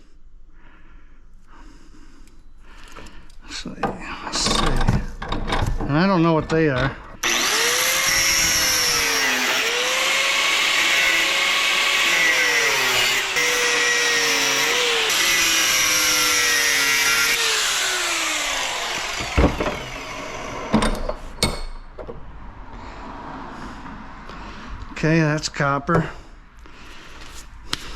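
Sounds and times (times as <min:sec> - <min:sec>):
metal parts knocking: 0:03.8 - 0:07.2
power drill running under load: 0:07.2 - 0:20.8.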